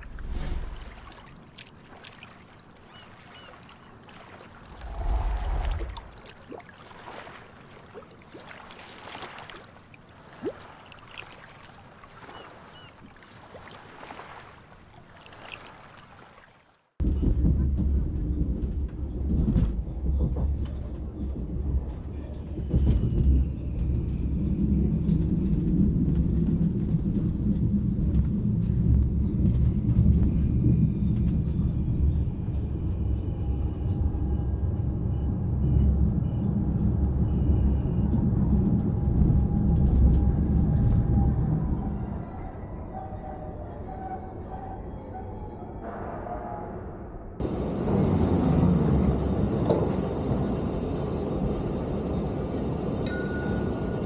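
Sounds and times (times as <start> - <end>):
vehicle rumble in motion: 4.8 - 6.2, 17.0 - 42.3.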